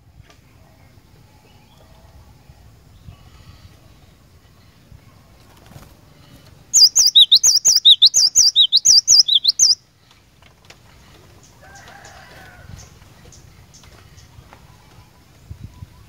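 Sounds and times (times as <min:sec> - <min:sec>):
bird singing whistled notes: 0:06.7 - 0:09.8.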